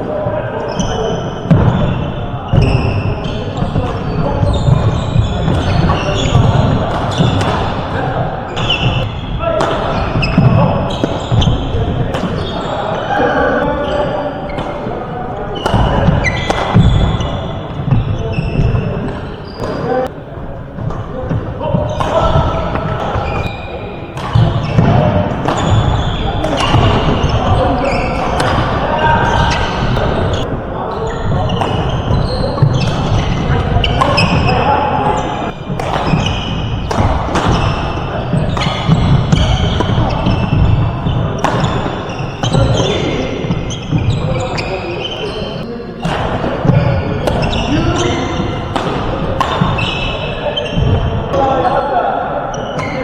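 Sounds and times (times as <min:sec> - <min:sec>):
background chatter: 0:00.0 - 0:53.0
shoes squeaking on court floor: 0:00.0 - 0:53.0
racket striking shuttlecock: 0:03.4 - 0:12.5, 0:15.6 - 0:18.0, 0:21.9 - 0:30.6, 0:31.4 - 0:44.0, 0:46.0 - 0:51.4.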